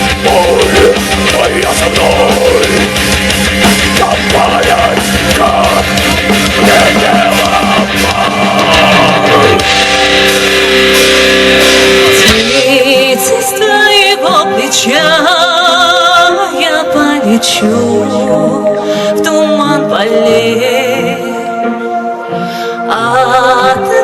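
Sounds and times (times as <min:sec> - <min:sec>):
metal band playing: 0:00.0 - 0:16.7.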